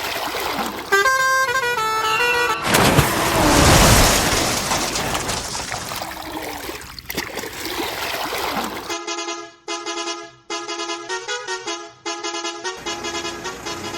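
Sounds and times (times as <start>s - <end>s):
splashing water: 0.0s - 9.0s
tooting horn tune: 0.9s - 4.0s, 8.9s - 13.9s.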